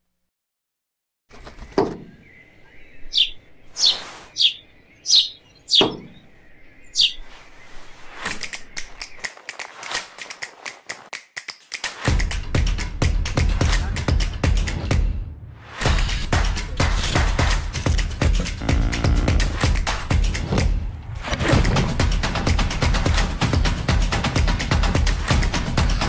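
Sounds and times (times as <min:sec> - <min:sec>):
birds chirping: 0:01.3 - 0:10.7, 0:17.0 - 0:19.8
music: 0:11.4 - 0:26.0.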